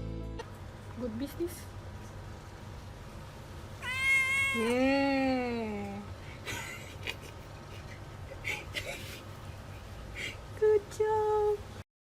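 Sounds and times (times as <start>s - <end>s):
cat meowing: 3.8s - 5.0s.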